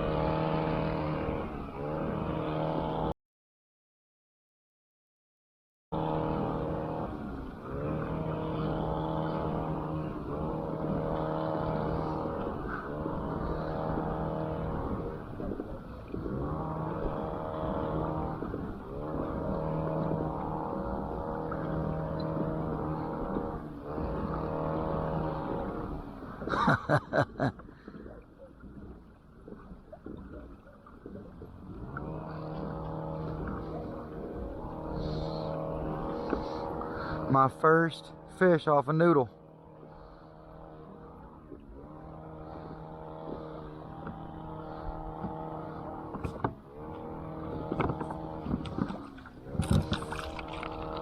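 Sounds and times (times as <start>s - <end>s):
motor humming: 0.0s - 3.1s, 6.0s - 51.0s.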